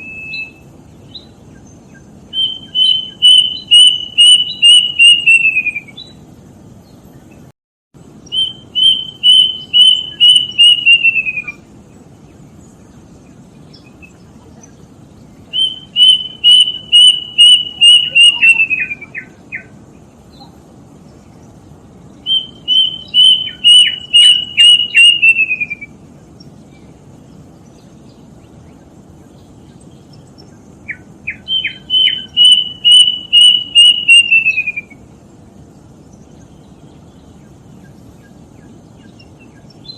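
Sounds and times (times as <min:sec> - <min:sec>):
cuckoo whistled song: 0:00.0 - 0:01.4, 0:02.3 - 0:06.2, 0:08.2 - 0:11.6, 0:15.5 - 0:19.7, 0:22.2 - 0:26.0, 0:30.9 - 0:35.1
low hiss: 0:00.0 - 0:39.9.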